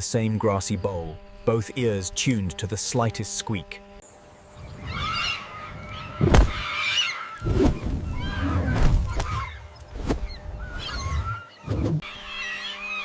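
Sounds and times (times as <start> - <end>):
birds calling: 0.0 - 13.0.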